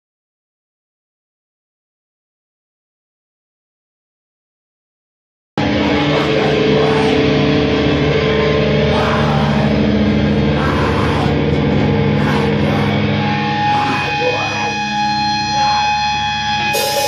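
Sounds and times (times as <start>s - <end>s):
bass guitar: 5.6s - 17.0s
distorted electric guitars: 5.6s - 17.0s.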